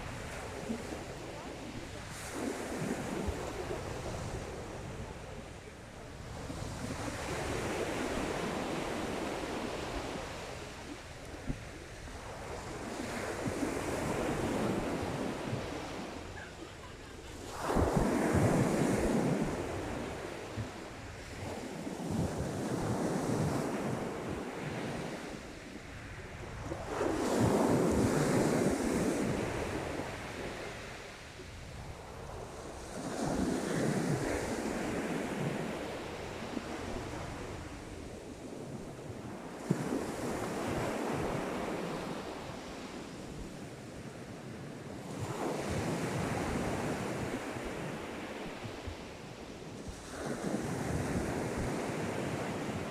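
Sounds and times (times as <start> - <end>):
wind buffeting microphone: 0.0 - 42.5.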